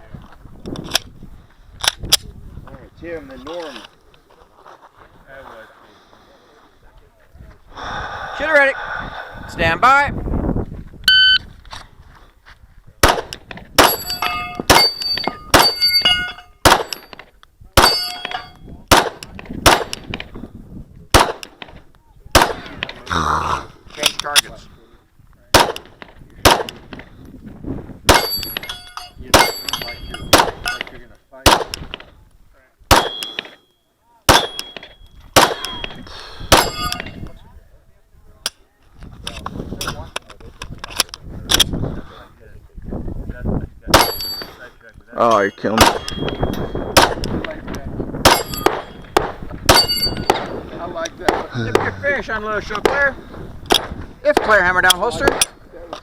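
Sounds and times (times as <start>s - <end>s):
pistol shots: 13.0s - 15.9s, 16.6s - 17.1s, 17.8s - 20.1s, 21.1s - 21.5s, 22.3s - 22.8s, 25.5s - 26.8s, 28.1s - 28.6s, 29.3s - 31.9s, 32.9s - 33.6s, 34.3s - 37.0s, 43.9s - 44.4s, 45.8s - 46.4s, 47.0s - 47.3s, 48.2s - 50.6s, 55.2s - 55.6s
steel targets ringing: 13.8s - 17.2s, 17.8s - 18.6s, 28.1s - 30.9s, 33.0s - 37.2s, 44.0s - 44.6s, 45.3s - 47.0s, 48.3s - 49.1s, 49.7s - 50.5s.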